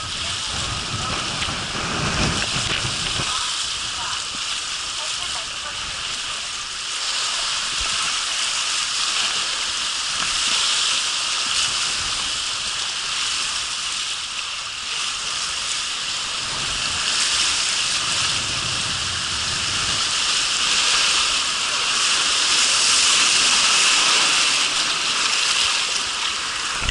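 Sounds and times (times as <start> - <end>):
low rumble: 0.0 - 5.0
water rushing on water slide: 0.0 - 26.9.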